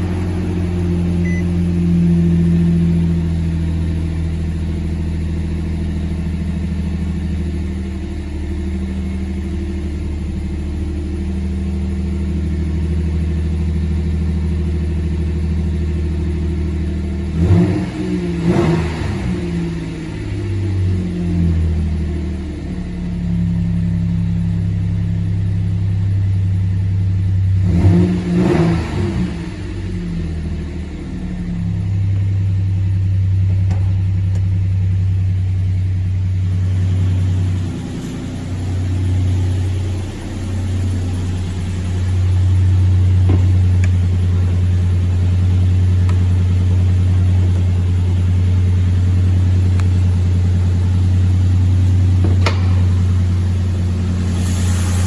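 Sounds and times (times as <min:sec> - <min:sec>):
pickup engine idling: 0:00.0 - 0:17.3, 0:29.6 - 0:55.0.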